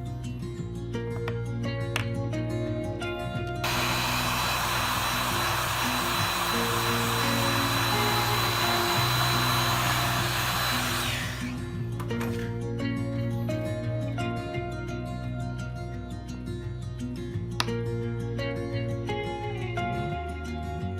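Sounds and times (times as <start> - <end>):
guitar music: 0.0 - 20.9
electric blower motor whining: 3.6 - 11.8.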